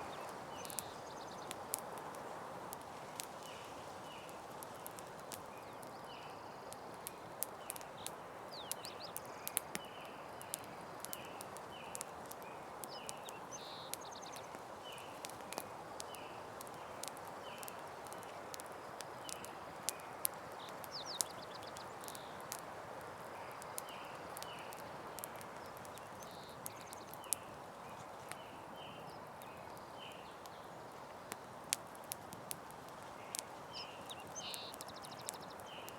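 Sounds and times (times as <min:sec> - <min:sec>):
campfire crackling: 0:00.0 - 0:35.9.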